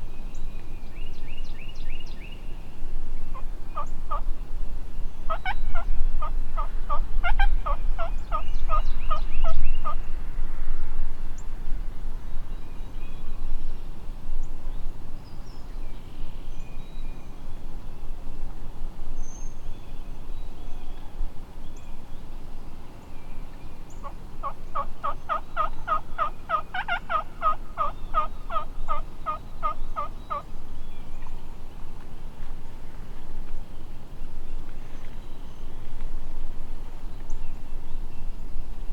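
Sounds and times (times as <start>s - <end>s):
turkey yelping: 5.3s - 9.2s, 24.4s - 30.4s.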